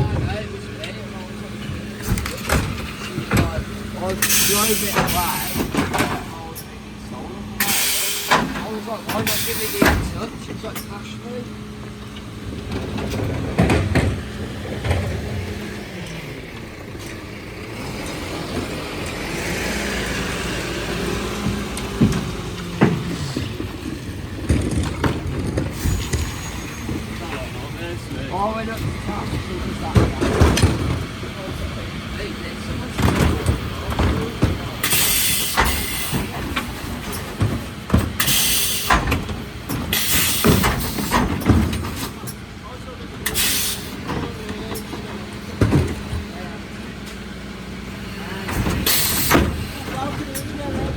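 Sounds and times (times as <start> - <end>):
truck diesel engine running: 0.0 - 50.9
hiss: 7.6 - 8.4.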